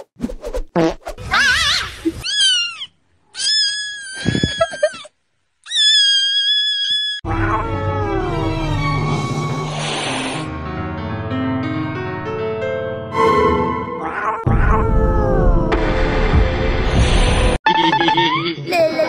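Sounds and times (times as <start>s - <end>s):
music: 7.3s - 14.2s.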